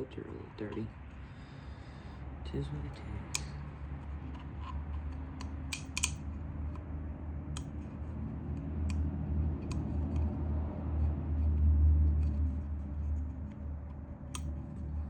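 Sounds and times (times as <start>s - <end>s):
light clicks and taps: 7.5s - 10.5s, 12.1s - 15.0s.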